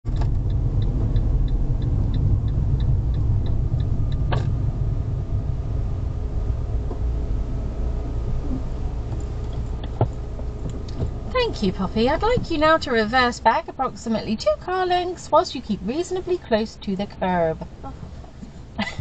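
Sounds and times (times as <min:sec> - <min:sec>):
car engine idling: 0:00.0 - 0:19.0
indicator ticking: 0:00.3 - 0:04.4.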